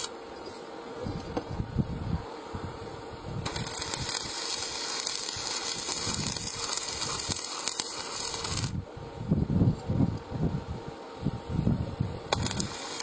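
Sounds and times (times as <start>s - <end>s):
welding arc crackling and sizzling: 0.0s - 1.6s, 3.4s - 8.8s, 12.3s - 13.0s.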